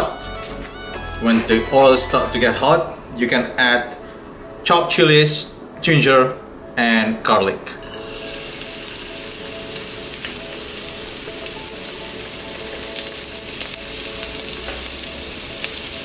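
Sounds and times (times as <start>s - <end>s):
food sizzling in hot oil: 7.8s - 16.0s.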